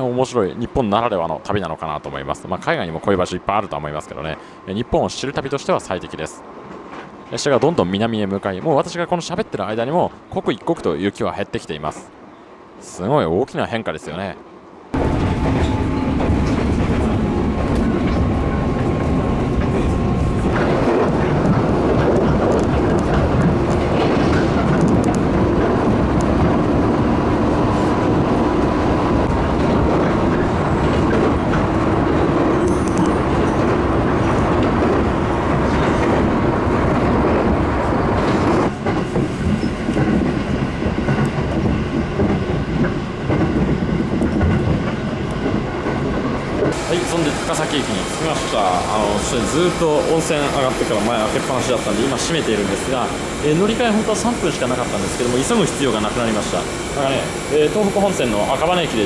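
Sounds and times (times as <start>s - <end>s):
train wheels rumbling on rails: 14.9s - 59.0s.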